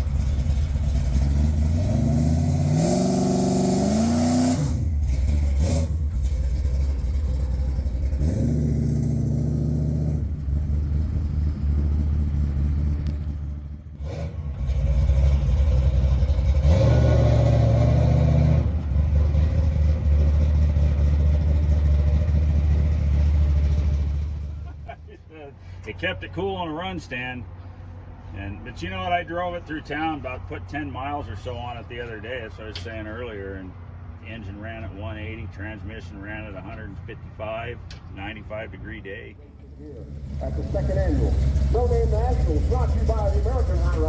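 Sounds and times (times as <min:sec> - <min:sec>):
engine at full throttle: 0:00.0 - 0:25.0, 0:39.6 - 0:44.0.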